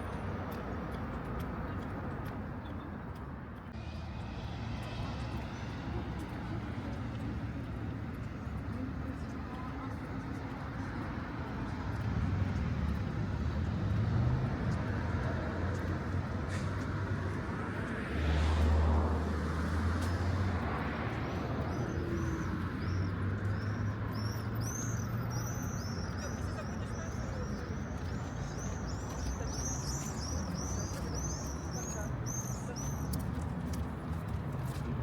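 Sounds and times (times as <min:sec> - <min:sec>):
cars passing: 0:00.0 - 0:35.0
small birds chirping: 0:21.2 - 0:33.8.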